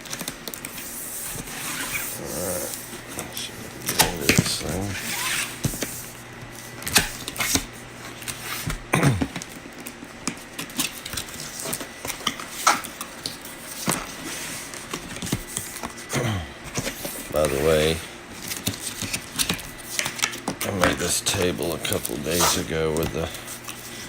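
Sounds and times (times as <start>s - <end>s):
packaging tearing or sliding: 0.7s - 2.8s, 3.4s - 6.0s
packaging clicks and scrapes: 16.7s - 24.0s.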